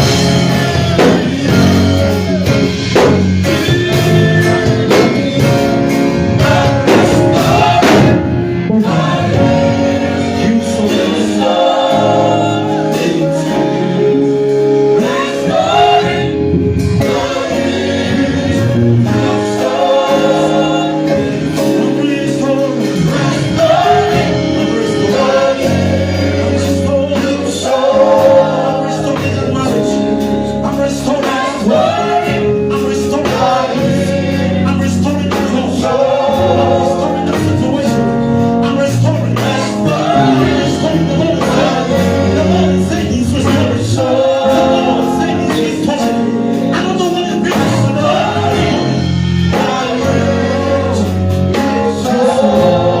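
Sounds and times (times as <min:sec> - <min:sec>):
congregation singing: 0:00.0 - 0:53.0
live band playing: 0:00.0 - 0:53.0.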